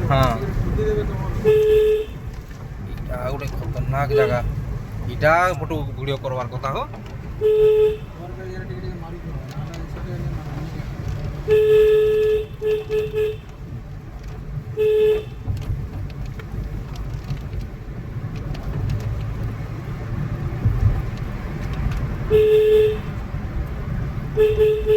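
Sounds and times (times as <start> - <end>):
engine and road rumble: 0.0 - 24.9
vehicle horn honking: 1.4 - 2.3, 4.0 - 4.5, 7.4 - 8.2, 11.4 - 13.6, 14.7 - 15.4, 22.3 - 23.2, 24.3 - 24.9.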